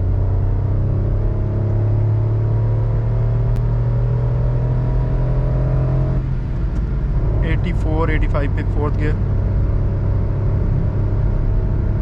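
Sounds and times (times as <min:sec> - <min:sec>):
car engine revving high: 0:00.0 - 0:06.4.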